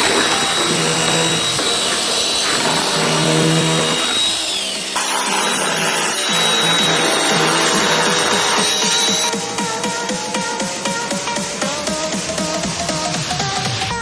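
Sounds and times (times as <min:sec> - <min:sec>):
chainsaw running at high revs: 0:00.0 - 0:09.4
background music: 0:00.0 - 0:14.0.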